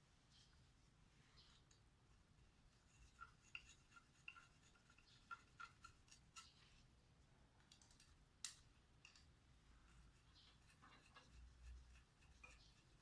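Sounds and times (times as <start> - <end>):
light clicks and taps: 7.6 - 9.3.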